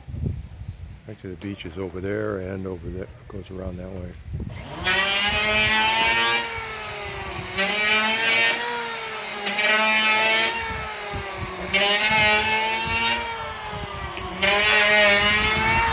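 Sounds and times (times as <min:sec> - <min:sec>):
motor whining: 0:04.5 - 0:15.9.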